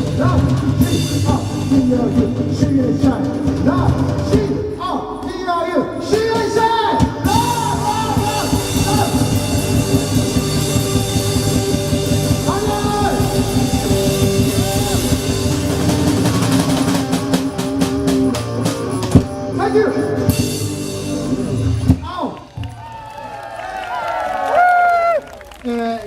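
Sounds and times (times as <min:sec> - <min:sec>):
live rock band playing: 0:00.0 - 0:22.2
person singing: 0:06.7 - 0:10.2.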